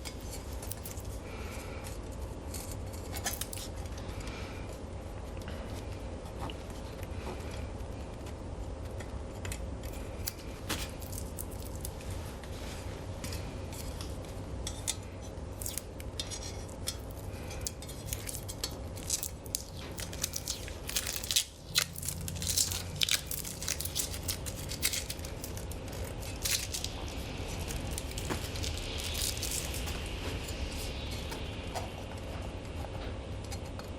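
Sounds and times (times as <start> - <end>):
steady low hum: 0.0 - 33.9
plastic film crackling and tearing: 9.9 - 12.2, 15.6 - 16.0, 16.9 - 31.0.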